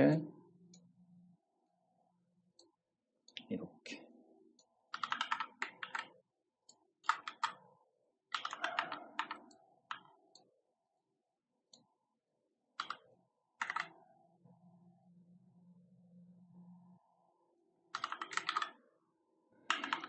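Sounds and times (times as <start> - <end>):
typing on computer keyboard: 4.9 - 10.5, 12.8 - 14.1, 17.9 - 18.8, 19.6 - 20.0.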